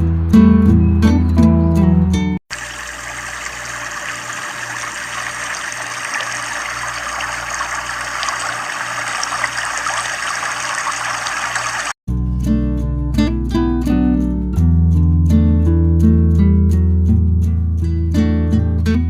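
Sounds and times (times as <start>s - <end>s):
guitar music: 0.0s - 2.4s, 12.2s - 19.0s
running water: 2.5s - 12.0s.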